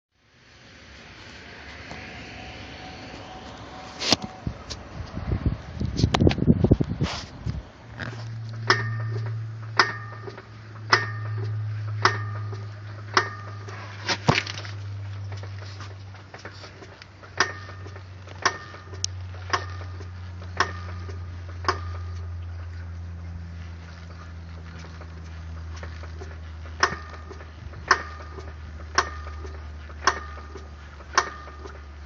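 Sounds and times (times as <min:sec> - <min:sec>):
steady low hum: 0:00.2 - 0:32.0
metallic clanks from driveshaft: 0:08.5 - 0:14.6, 0:16.3 - 0:22.3, 0:25.8 - 0:31.9.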